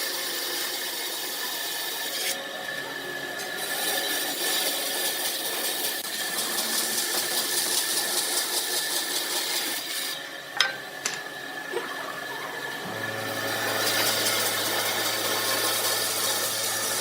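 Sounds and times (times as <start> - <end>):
power tool hissing on wood: 0.0 - 17.0
motor humming: 10.2 - 17.0.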